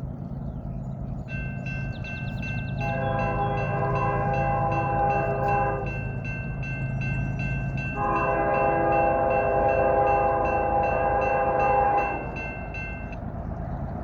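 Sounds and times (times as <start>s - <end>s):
train rumble: 0.0s - 14.0s
crossing signal bell ringing: 1.3s - 13.2s
locomotive horn blast: 2.8s - 6.1s, 8.0s - 12.7s.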